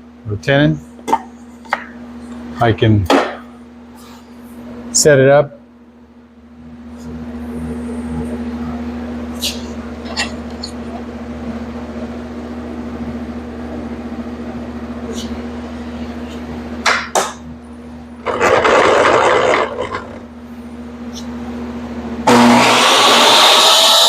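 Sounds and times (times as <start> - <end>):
steady hum: 0.0 - 24.0
table saw running: 18.2 - 20.3, 22.2 - 24.0.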